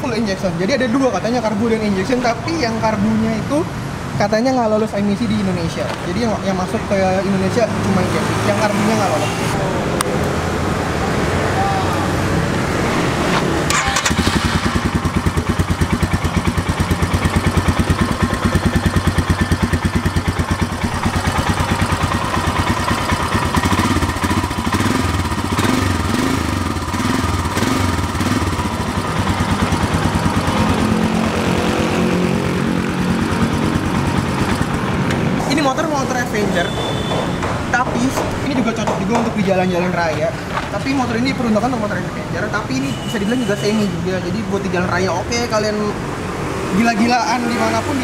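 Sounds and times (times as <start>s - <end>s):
motorcycle engine idling: 13.7s - 31.6s, 32.8s - 35.0s.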